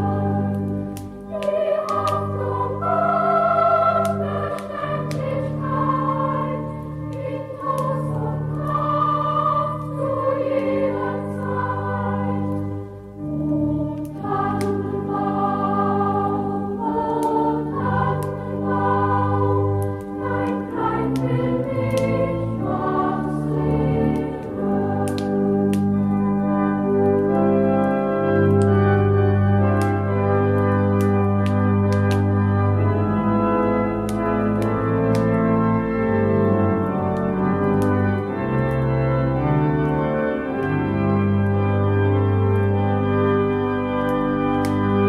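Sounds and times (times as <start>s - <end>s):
choir singing a slow song: 0.0s - 29.0s.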